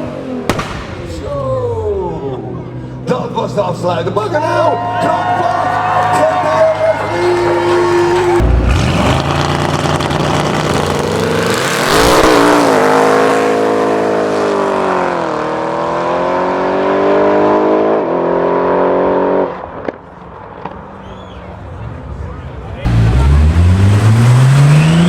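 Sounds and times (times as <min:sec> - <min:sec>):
car engine accelerating hard: 0:01.8 - 0:20.0, 0:21.7 - 0:25.0.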